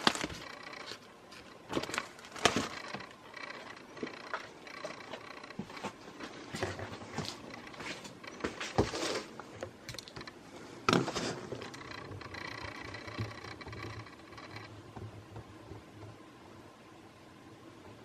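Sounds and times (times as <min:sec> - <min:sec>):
hardware clicks and scraping: 0:00.0 - 0:16.2
faint steady hum: 0:00.0 - 0:18.0.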